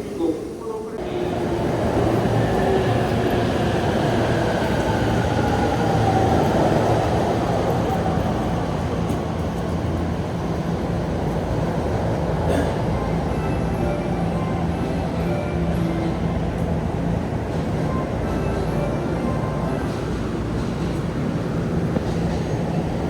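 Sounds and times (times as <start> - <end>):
electric train rumble: 0.0 - 23.0.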